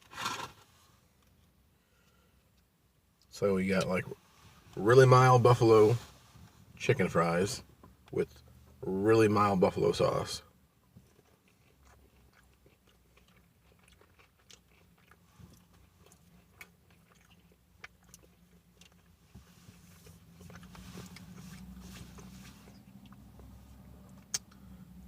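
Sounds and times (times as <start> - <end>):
low steady hum: 0.0 - 25.0
chewing and crunching: 10.8 - 24.7.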